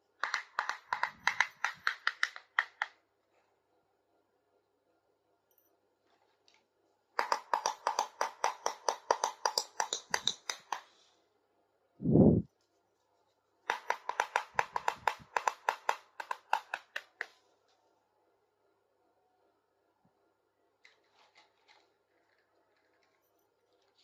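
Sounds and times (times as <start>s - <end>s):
plastic toy pieces clicking: 0.2s - 3.0s, 7.2s - 10.9s.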